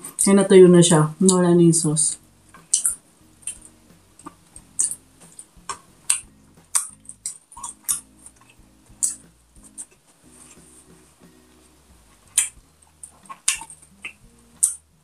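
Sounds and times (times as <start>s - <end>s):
person chewing and lip smacking: 2.5s - 10.6s, 12.3s - 14.8s
sharp wet mouth clicks: 2.6s - 10.0s, 12.4s - 14.8s.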